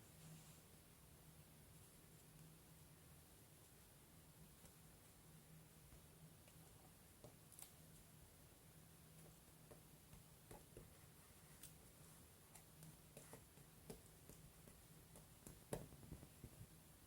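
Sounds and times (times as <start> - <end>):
paper rustling and soft taps: 9.2 - 16.8.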